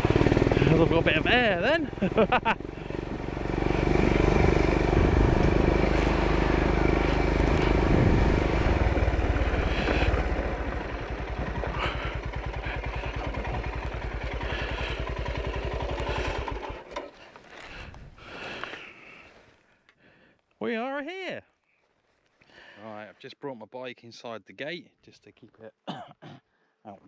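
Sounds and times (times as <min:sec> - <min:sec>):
motorcycle engine idling: 0:00.0 - 0:19.7.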